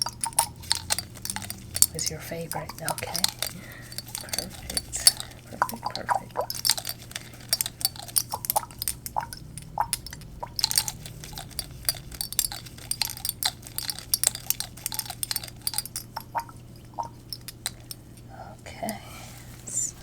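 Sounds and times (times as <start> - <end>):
tapping and clinking on glass bottles: 0.0 - 18.0.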